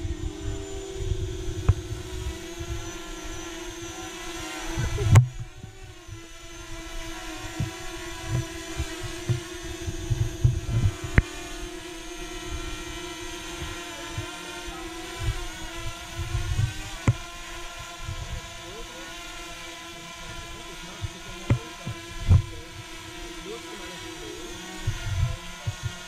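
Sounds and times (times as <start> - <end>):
wind buffeting microphone: 0.0 - 3.4, 7.5 - 11.3, 15.2 - 17.1
drone propellers whining: 0.0 - 26.0.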